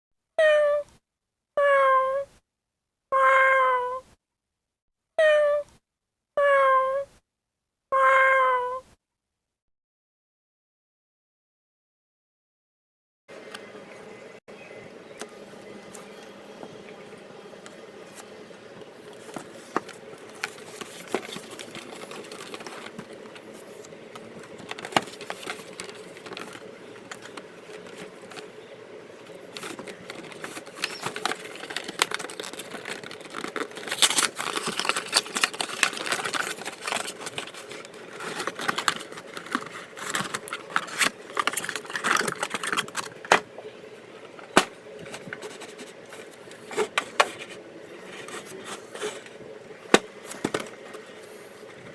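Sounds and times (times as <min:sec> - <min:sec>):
faint steady hum: 0:13.3 - 0:51.9
card packs rustling and crinkling: 0:15.2 - 0:51.9.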